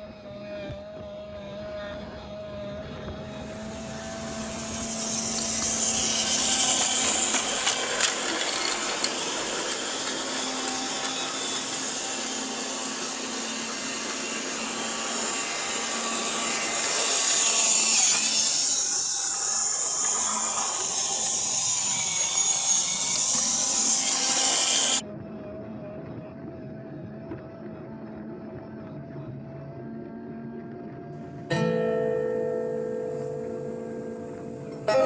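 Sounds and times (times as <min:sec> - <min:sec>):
model train running on track: 0:01.2 - 0:25.0, 0:32.4 - 0:35.0.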